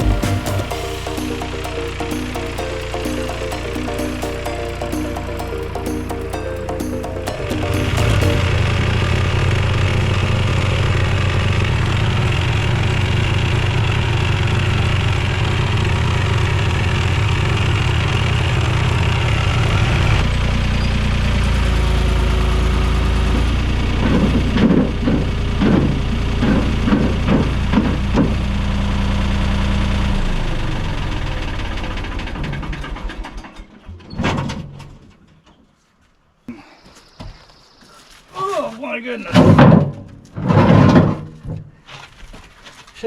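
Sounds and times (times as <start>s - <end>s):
tractor engine running: 0.0s - 33.2s.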